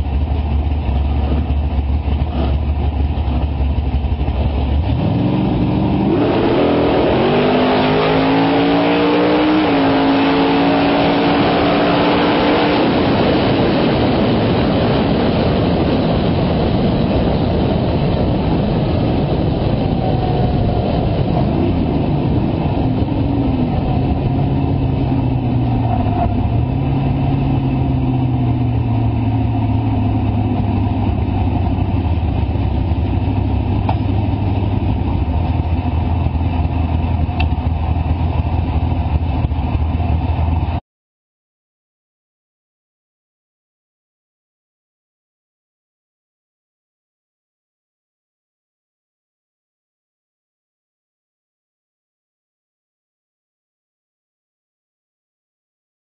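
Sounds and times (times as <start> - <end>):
race car engine revving: 0.3 - 36.0.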